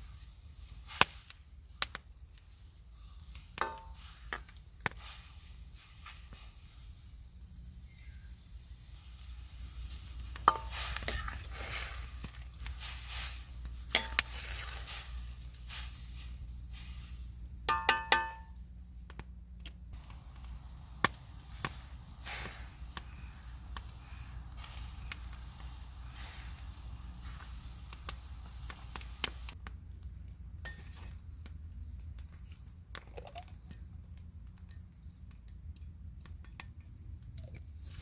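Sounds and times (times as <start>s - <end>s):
ringing metal clink: 17.7s - 18.5s.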